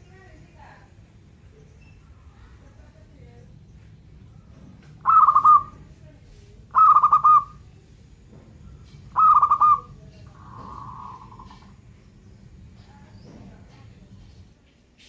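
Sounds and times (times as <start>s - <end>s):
dove cooing: 4.4s - 6.0s, 6.7s - 7.7s, 8.8s - 11.9s.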